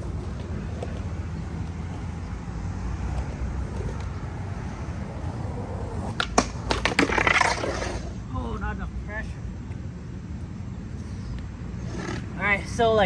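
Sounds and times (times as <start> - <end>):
skateboard clacks and scrapes: 0.0 - 8.2
skateboard wheels rolling on concrete: 0.0 - 13.0.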